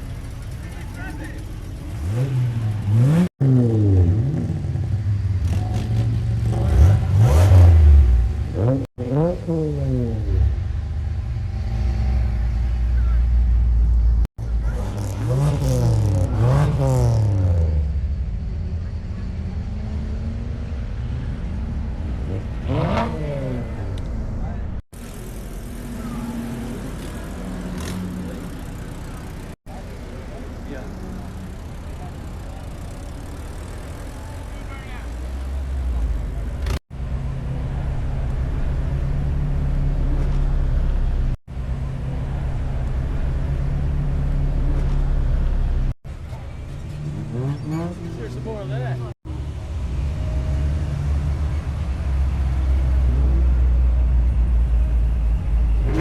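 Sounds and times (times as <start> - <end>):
engine idling: 0.0 - 3.2, 28.2 - 36.8
vehicle engine revving and idling: 0.0 - 56.0.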